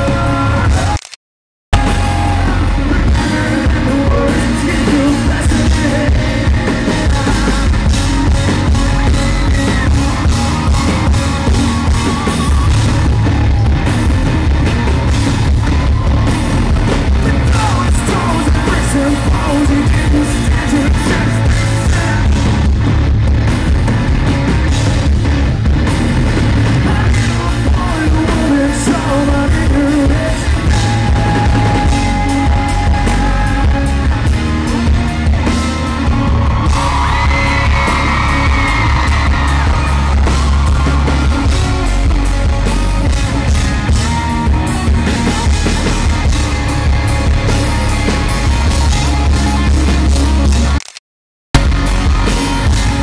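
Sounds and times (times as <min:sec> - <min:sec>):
lead singer singing: 0:00.0 - 0:01.0, 0:01.8 - 0:12.8, 0:16.9 - 0:22.8, 0:26.6 - 0:50.5
live rock band playing: 0:00.0 - 0:01.0, 0:01.8 - 0:50.8, 0:51.6 - 0:53.0.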